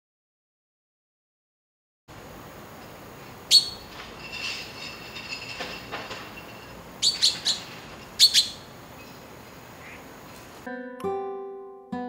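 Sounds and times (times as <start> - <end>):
sharp loud bird call: 3.5 - 3.9, 7.0 - 9.2
soft bird chirping: 3.5 - 5.0, 6.3 - 10.1.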